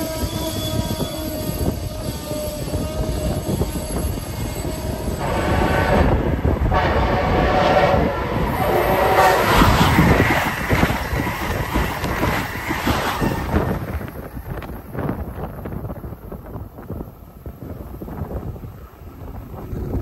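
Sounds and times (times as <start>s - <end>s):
train horn: 0.0s - 10.1s
train rushing past: 0.0s - 17.1s.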